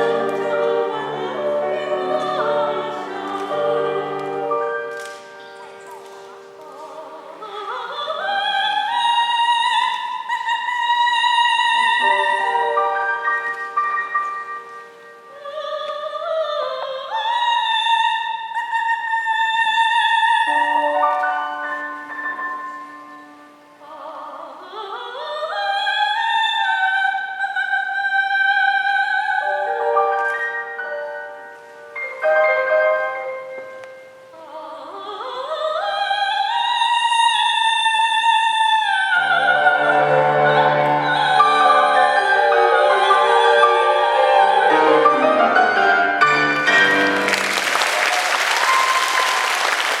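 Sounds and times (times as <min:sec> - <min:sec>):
piano chords: 0:00.0 - 0:07.8, 0:11.7 - 0:15.9, 0:29.4 - 0:34.4, 0:39.3 - 0:50.0
soprano singing operatically: 0:00.0 - 0:46.9
audience applause: 0:46.6 - 0:50.0.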